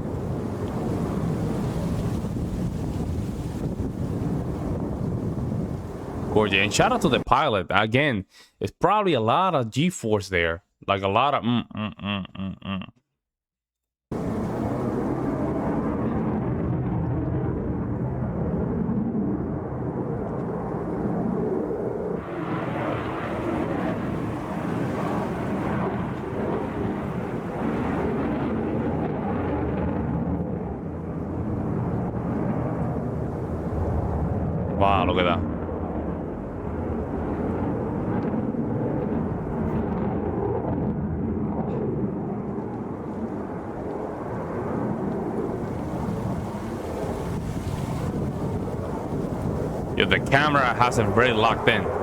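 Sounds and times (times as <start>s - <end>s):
fighter jet engines rumbling: 0.0s - 8.4s, 20.6s - 52.0s.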